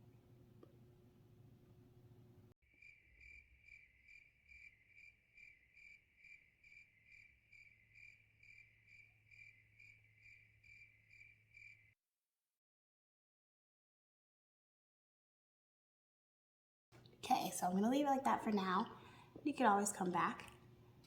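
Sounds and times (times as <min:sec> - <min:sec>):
low steady hum: 0:00.0 - 0:02.5
cricket chirping: 0:02.7 - 0:12.0.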